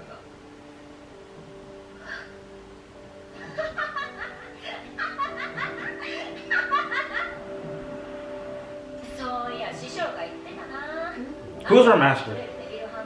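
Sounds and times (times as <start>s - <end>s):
soft background music: 0.0s - 13.0s
laughter: 3.4s - 7.5s.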